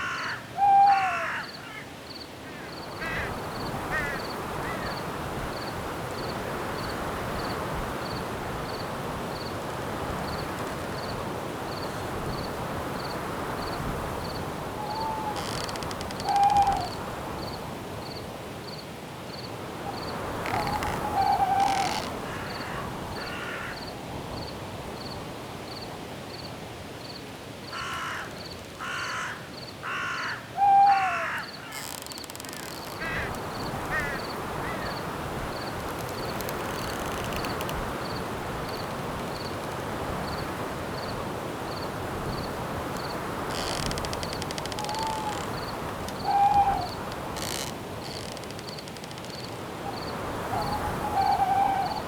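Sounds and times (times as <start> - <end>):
bird cawing: 0.0 - 5.0, 14.8 - 17.0, 20.4 - 23.8, 27.7 - 35.1, 43.5 - 48.8, 49.9 - 52.0
cricket chirping: 0.0 - 9.6, 10.2 - 52.0
owl hoots: 0.1 - 1.4, 14.8 - 15.6, 16.2 - 17.0, 20.5 - 22.1, 30.1 - 31.5, 44.8 - 47.0, 49.9 - 52.0
wind-like hiss: 1.5 - 52.0.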